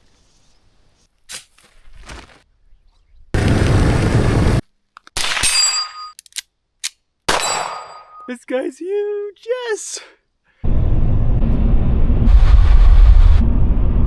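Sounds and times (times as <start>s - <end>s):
sharp metallic clang ringing: 5.2s - 6.2s, 7.3s - 8.3s
loud rushing noise burst: 10.7s - 14.0s.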